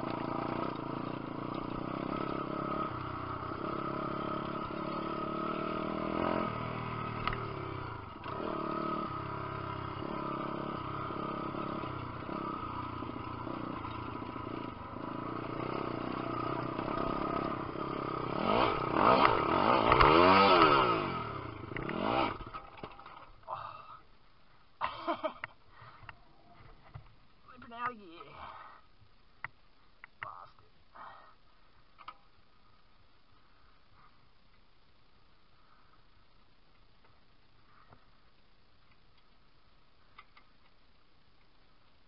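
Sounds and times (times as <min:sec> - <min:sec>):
pit bike engine revving: 0:00.0 - 0:23.2.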